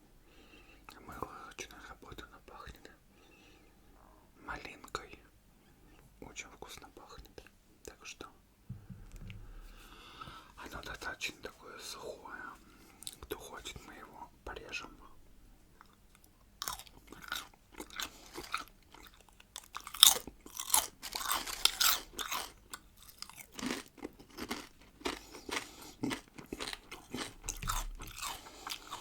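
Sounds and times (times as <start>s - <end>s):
soft chewing: 12.9s - 29.0s
crunching bite of pickle: 15.8s - 29.0s.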